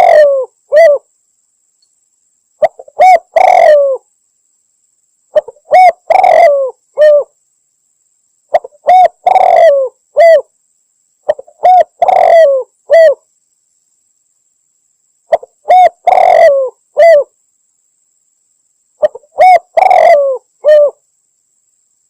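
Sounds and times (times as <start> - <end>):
dove cooing: 0.0 - 1.1, 2.6 - 4.0, 5.3 - 7.3, 8.5 - 10.5, 11.3 - 13.2, 15.3 - 17.3, 19.0 - 21.0.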